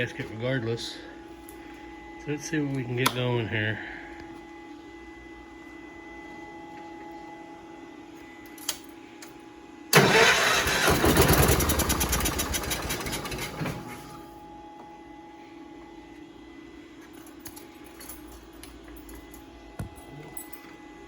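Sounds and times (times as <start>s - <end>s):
faint steady hum: 0.0s - 10.0s
engine cranking on starter: 9.9s - 14.1s.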